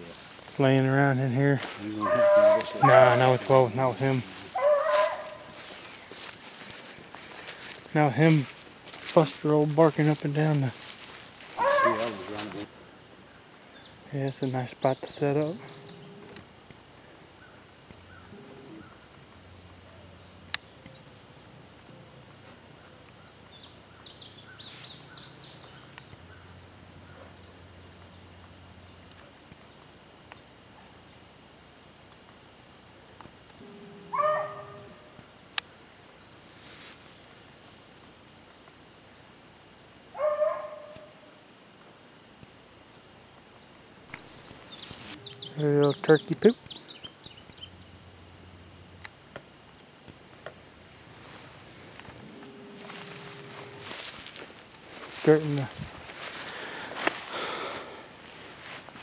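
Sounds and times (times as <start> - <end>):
high-pitched insect drone: 0.0 - 59.0
short animal calls: 1.8 - 3.5, 4.4 - 5.6, 11.5 - 12.5, 34.0 - 35.0
faint bird chirps: 44.2 - 47.9.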